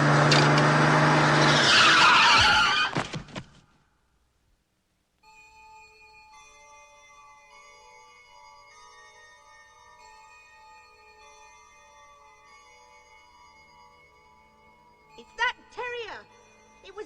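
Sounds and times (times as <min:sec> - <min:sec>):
low engine hum: 0:00.0 - 0:01.6
tyres screeching: 0:00.0 - 0:03.2
soft chiming music: 0:05.2 - 0:17.0.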